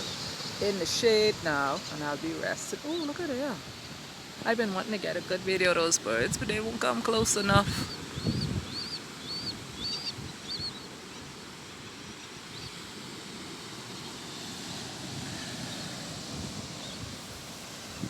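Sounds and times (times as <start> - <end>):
wind and surf rushing: 0.0 - 18.0
bird chirping: 6.8 - 12.8.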